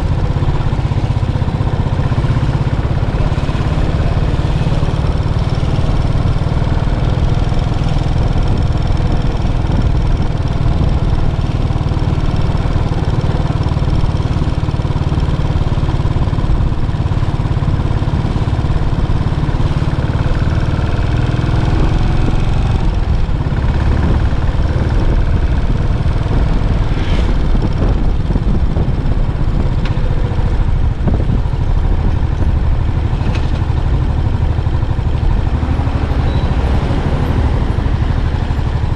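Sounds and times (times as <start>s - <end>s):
motorcycle engine thumping: 22.9s - 36.4s.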